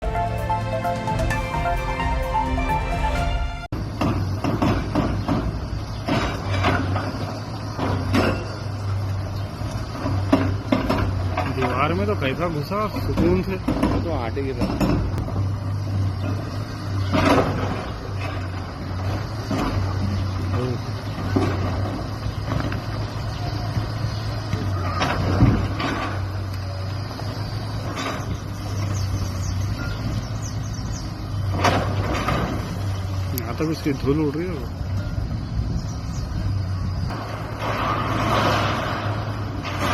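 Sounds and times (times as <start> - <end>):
music: 0.0 - 3.7
diesel engine running: 0.0 - 39.9
debris crashing and scraping: 24.7 - 26.5, 31.5 - 33.1, 37.1 - 39.9.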